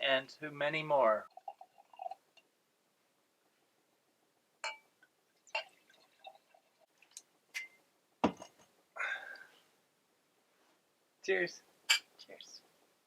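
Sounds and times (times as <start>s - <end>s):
wine glasses clinking: 4.6s - 4.9s.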